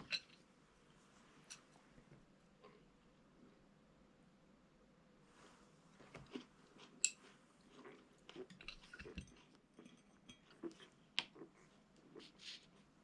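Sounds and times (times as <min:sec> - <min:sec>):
faint chewing: 0:05.9 - 0:13.0.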